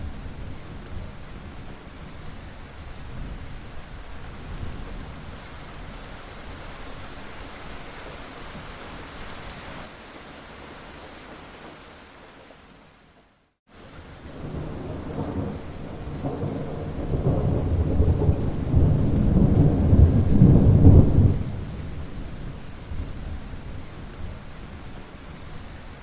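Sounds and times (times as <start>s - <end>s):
rain falling: 0.0s - 26.0s
rolling thunder rumble: 14.2s - 25.5s.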